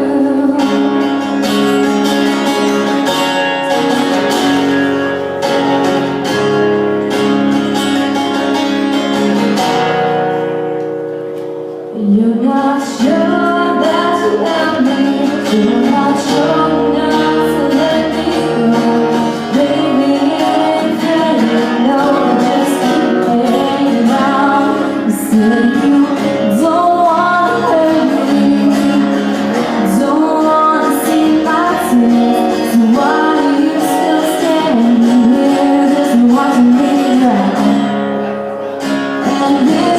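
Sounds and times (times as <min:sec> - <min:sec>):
woman singing: 0:00.0 - 0:02.4, 0:11.9 - 0:38.1, 0:39.2 - 0:39.9
strummed acoustic guitar: 0:00.0 - 0:39.9.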